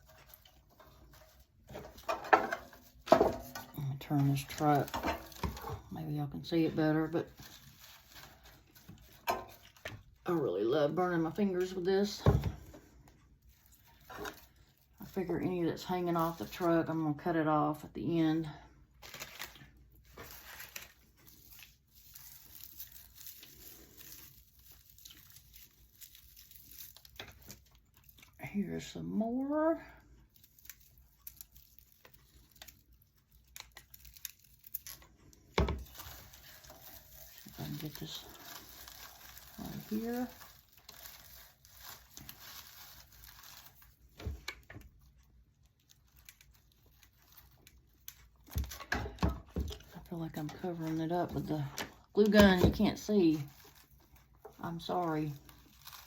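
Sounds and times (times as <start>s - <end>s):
soft rustling of raffia: 0.0s - 48.9s, 49.8s - 56.0s
dry raffia rustling: 19.0s - 28.2s, 35.8s - 44.2s.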